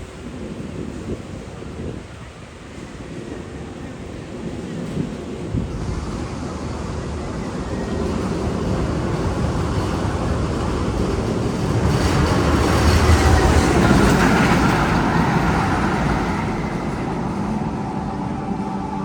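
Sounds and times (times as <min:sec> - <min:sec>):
train-like rumble over speakers: 0:00.0 - 0:19.0.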